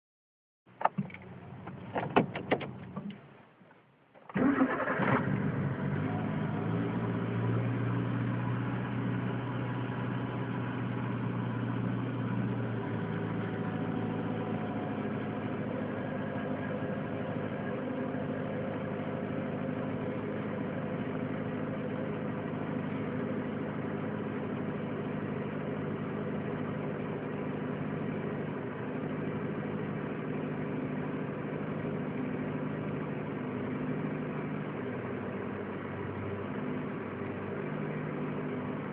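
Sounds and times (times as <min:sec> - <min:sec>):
car engine idling: 0:00.7 - 0:03.6, 0:04.3 - 0:38.9
engine cranking: 0:04.2 - 0:05.4.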